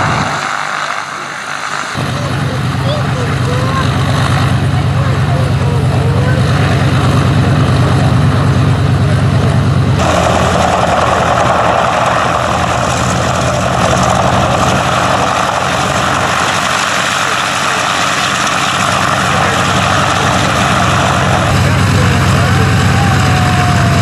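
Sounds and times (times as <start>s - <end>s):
propeller plane engine drone: 0.0s - 24.0s
rushing air noise: 9.6s - 22.0s.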